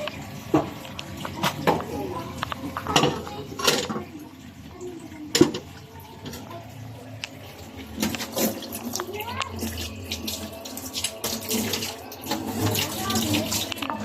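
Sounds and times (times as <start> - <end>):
dishes and cutlery clinking: 0.0 - 4.2.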